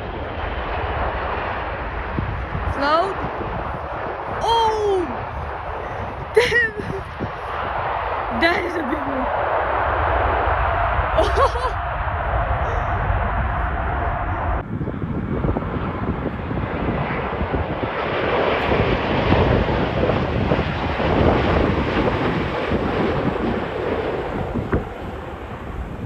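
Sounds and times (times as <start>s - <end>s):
wind buffeting microphone: 1.8s - 26.0s
jet engines roaring: 14.0s - 26.0s.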